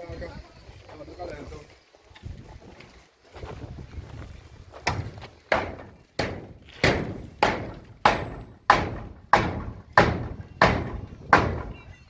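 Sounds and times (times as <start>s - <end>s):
heavy pounding blows: 4.8s - 11.9s.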